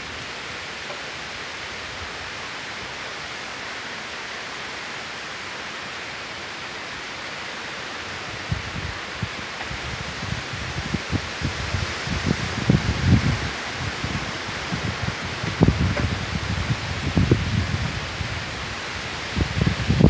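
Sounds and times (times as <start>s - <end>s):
torrential rain hissing: 0.0s - 20.0s
wind buffeting microphone: 8.2s - 20.0s.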